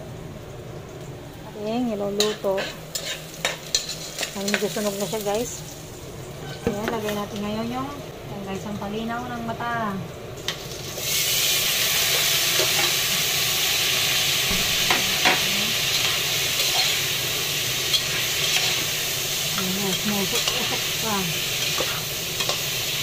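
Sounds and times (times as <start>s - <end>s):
food sizzling in hot oil: 0.0s - 23.0s
spatula stirring a pot: 2.2s - 4.4s.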